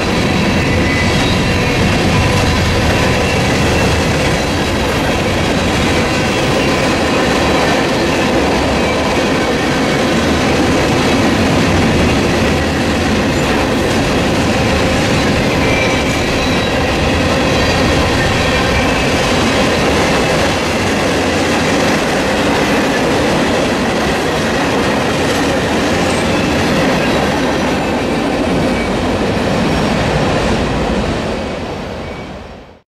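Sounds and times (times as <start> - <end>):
train wheels clacking over rails: 0.0 - 31.4.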